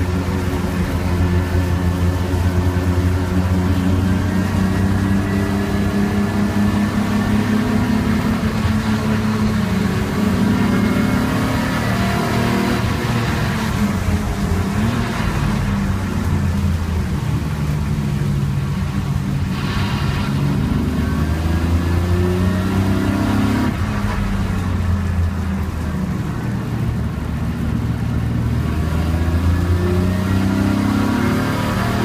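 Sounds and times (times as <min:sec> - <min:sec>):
race car engine from inside cabin: 0:00.0 - 0:32.0.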